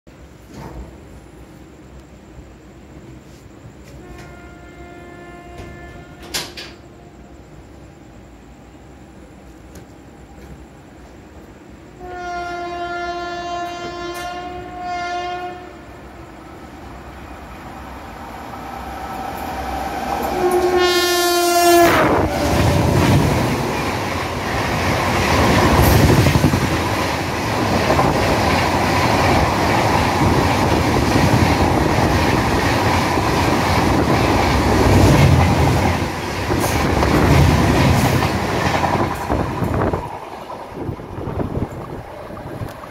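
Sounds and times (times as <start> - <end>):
train coaches rushing past: 0.2 - 42.9
locomotive horn blasts: 3.9 - 7.2, 12.0 - 16.0, 20.2 - 22.3.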